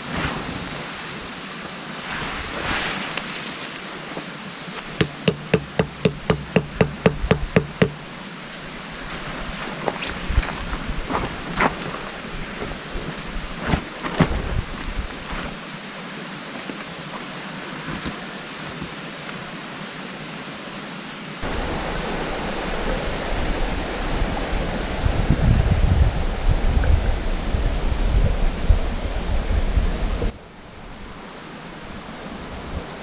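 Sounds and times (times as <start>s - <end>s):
high insect drone: 0.5s - 21.9s
sharp knocks: 4.9s - 8.2s.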